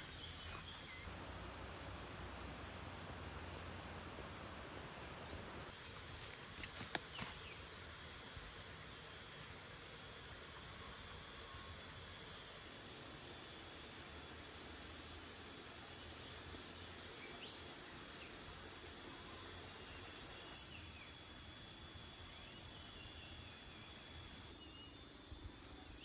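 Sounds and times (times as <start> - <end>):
insects trilling: 0.0 - 4.6, 5.6 - 26.0.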